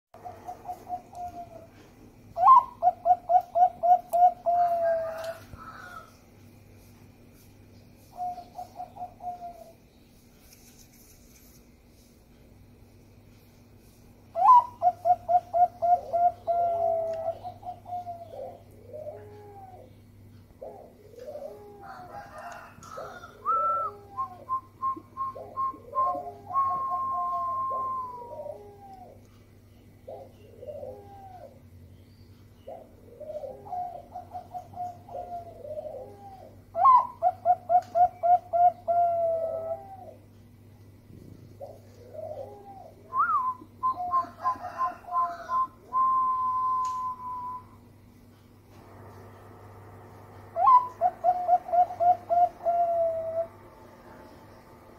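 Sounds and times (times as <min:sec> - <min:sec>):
dove cooing: 0:00.2 - 0:06.2, 0:08.0 - 0:09.8, 0:14.3 - 0:29.4, 0:30.0 - 0:31.8, 0:32.6 - 0:40.5, 0:41.4 - 0:47.7, 0:50.5 - 0:54.8
faint steady hum: 0:00.2 - 0:54.9.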